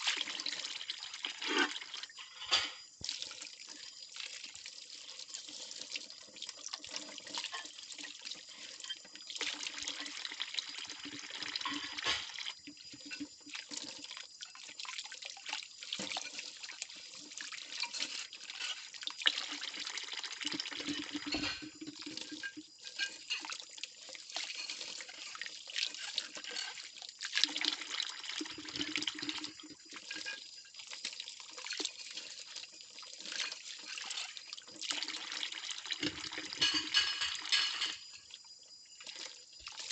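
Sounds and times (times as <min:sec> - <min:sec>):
tap water running into sink: 0:00.0 - 0:38.4
ceramic dishes clinking: 0:21.2 - 0:21.8, 0:36.6 - 0:38.1.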